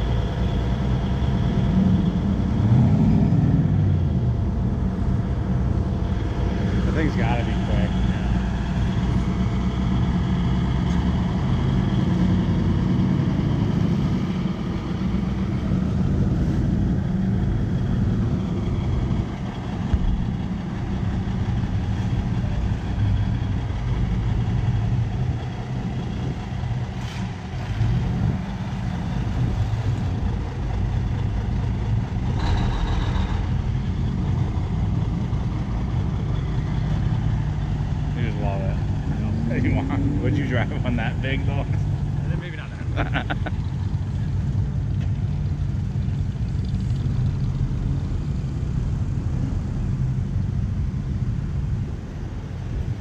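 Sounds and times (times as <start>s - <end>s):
car engines running: 0.0s - 53.0s
rush of noise: 18.0s - 23.4s.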